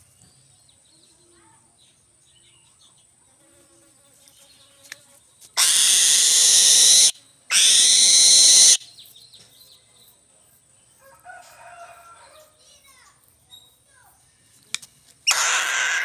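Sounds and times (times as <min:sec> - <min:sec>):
eagle screaming: 0:05.6 - 0:08.8, 0:15.3 - 0:16.0.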